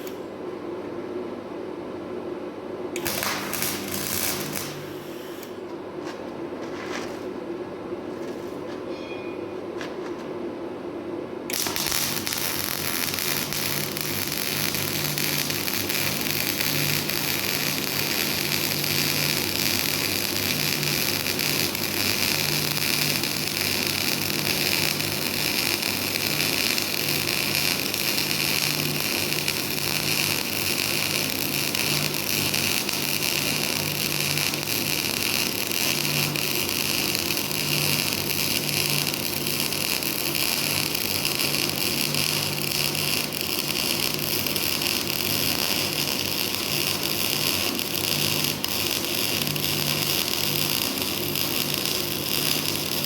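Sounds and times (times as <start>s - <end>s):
welding arc crackling: 3.0s - 5.6s, 11.5s - 53.0s.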